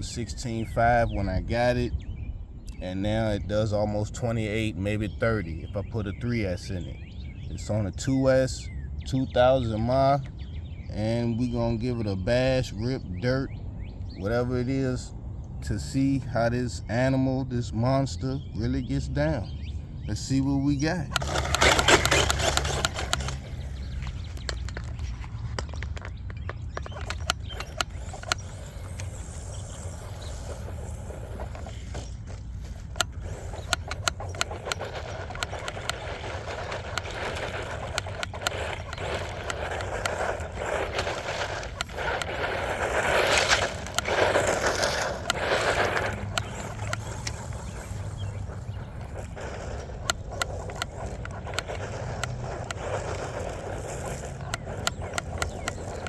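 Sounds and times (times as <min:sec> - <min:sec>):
rc truck driving over dirt: 0:00.0 - 0:56.0
tyres crunching on loose ground: 0:20.2 - 0:56.0
clicks of thrown grit: 0:21.1 - 0:56.0.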